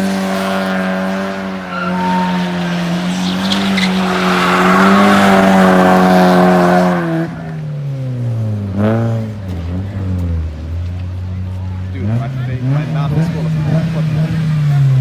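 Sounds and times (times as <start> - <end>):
car engine revving: 0.0 - 15.0
tyres squealing: 0.5 - 7.6.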